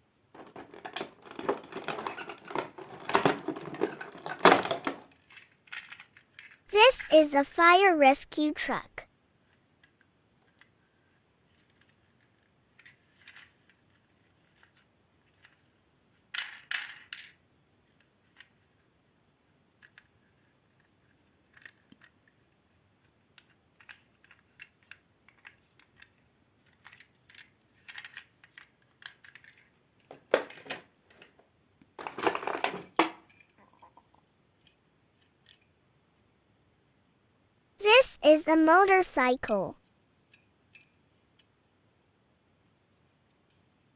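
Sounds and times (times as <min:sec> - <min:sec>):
plastic toy rattling: 0:00.4 - 0:06.6, 0:11.5 - 0:17.4, 0:23.4 - 0:31.4, 0:32.0 - 0:33.9.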